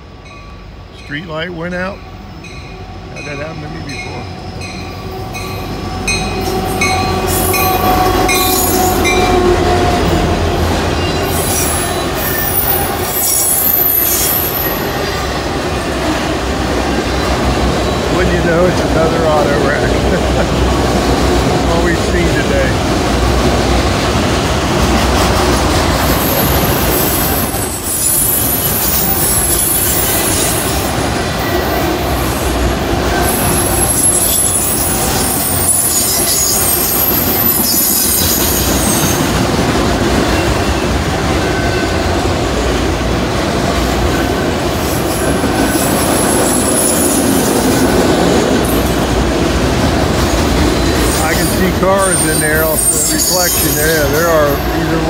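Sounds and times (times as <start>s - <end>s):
freight cars rumbling and rattling: 3.0s - 55.0s
high-pitched wheel squeal: 11.0s - 15.3s, 33.2s - 39.3s, 50.8s - 55.0s.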